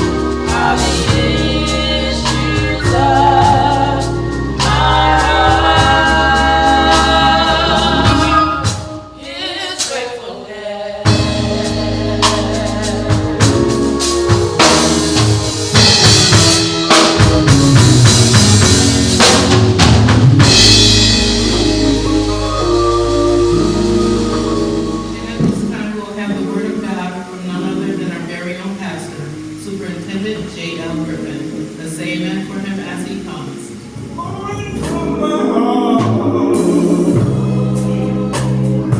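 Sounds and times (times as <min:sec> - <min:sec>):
low bass notes: 0:00.0 - 0:08.7, 0:11.1 - 0:26.3
drum kit: 0:00.0 - 0:10.2, 0:11.0 - 0:26.2, 0:35.9 - 0:38.9
gospel singing: 0:00.0 - 0:38.9.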